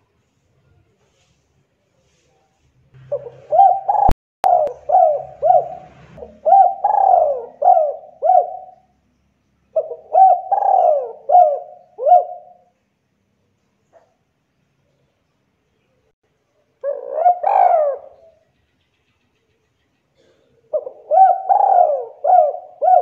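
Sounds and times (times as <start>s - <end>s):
dove cooing song: 3.0s - 8.9s, 9.7s - 12.7s, 16.8s - 18.6s, 20.2s - 23.0s.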